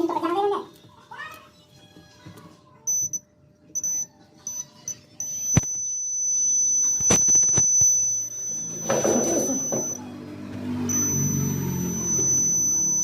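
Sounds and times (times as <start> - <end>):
electronic beeps: 2.9 - 10.1, 10.8 - 13.0.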